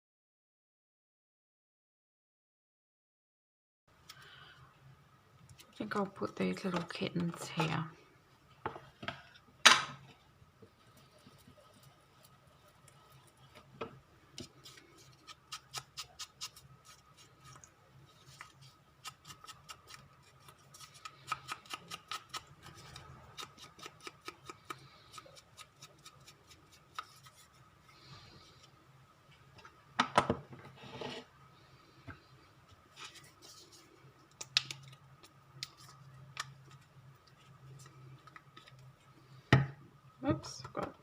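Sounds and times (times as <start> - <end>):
scissors snipping paper: 14.7 - 17.6, 19.0 - 27.3.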